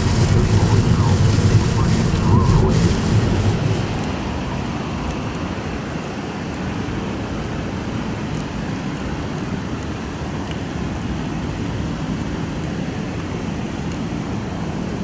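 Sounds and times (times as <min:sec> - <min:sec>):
heavy rain: 0:00.0 - 0:10.1
traffic on wet roads: 0:00.0 - 0:15.0.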